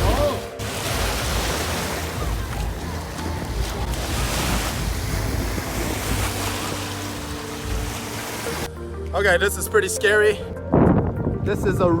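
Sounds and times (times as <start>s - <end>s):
water lapping in small waves: 0.0s - 8.7s
wind buffeting microphone: 0.0s - 8.7s, 10.6s - 12.0s.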